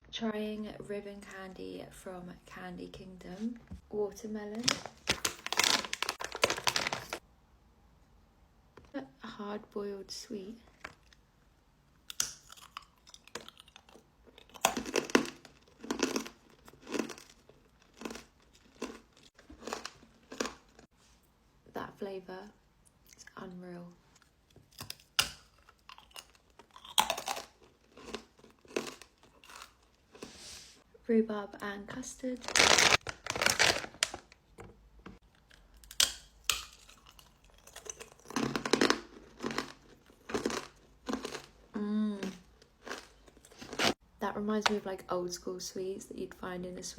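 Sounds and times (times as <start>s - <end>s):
wrapper crinkling: 4.5s - 7.2s, 32.4s - 34.5s
hard candy crunching between teeth: 4.7s - 7.2s, 12.0s - 20.9s, 24.1s - 30.3s, 32.4s - 34.4s, 35.2s - 44.0s.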